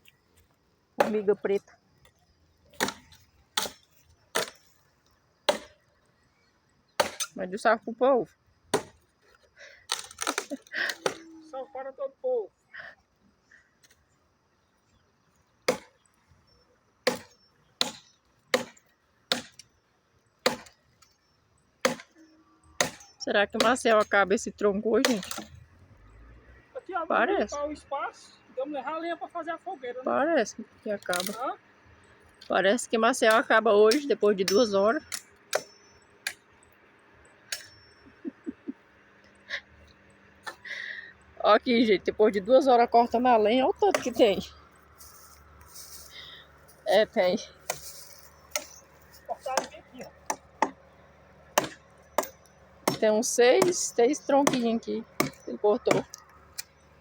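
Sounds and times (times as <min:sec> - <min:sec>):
machete chopping into log: 0:02.8 - 0:04.7, 0:05.5 - 0:05.8, 0:07.0 - 0:07.3, 0:08.7 - 0:09.0, 0:09.9 - 0:11.2, 0:15.7 - 0:15.9, 0:17.0 - 0:19.6, 0:20.4 - 0:20.8, 0:21.8 - 0:22.1, 0:22.8 - 0:23.7, 0:25.0 - 0:25.5, 0:43.9 - 0:44.3, 0:47.6 - 0:48.8, 0:49.4 - 0:50.8, 0:51.6 - 0:53.0, 0:55.2 - 0:56.1.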